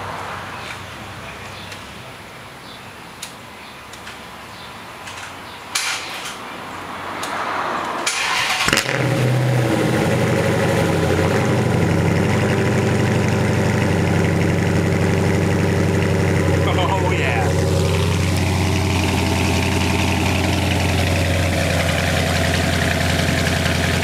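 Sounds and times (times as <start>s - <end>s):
car engine idling: 8.1s - 24.0s.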